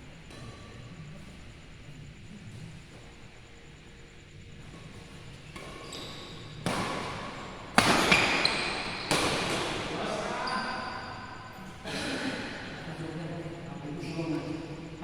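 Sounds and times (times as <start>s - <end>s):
shoes squeaking on court: 4.7s - 11.6s.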